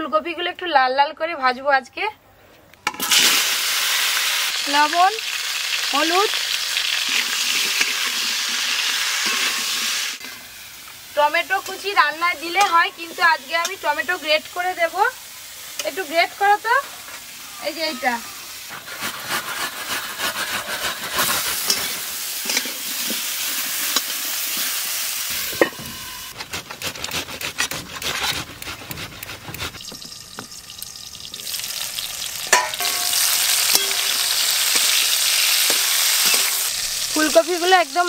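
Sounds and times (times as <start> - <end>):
vegetables sizzling in oil: 2.9 - 26.4, 29.5 - 38.0
tomato grating on steel grater: 18.7 - 21.8, 25.9 - 29.9
spatula scraping a pan: 18.7 - 30.0.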